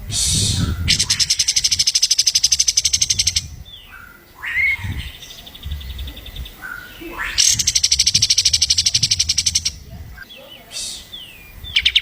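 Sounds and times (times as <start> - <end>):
songbird trilling and whistling: 0.2 - 12.0.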